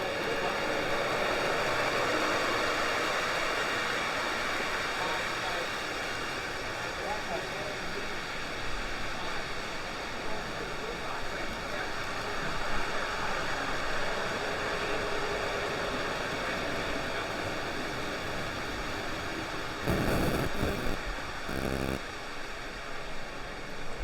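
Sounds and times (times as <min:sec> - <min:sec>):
brief low buzzing tone: 0:19.9 - 0:22.0
faint electronic whine: 0:19.9 - 0:22.0
steady hiss-like noise: 0:19.9 - 0:22.0.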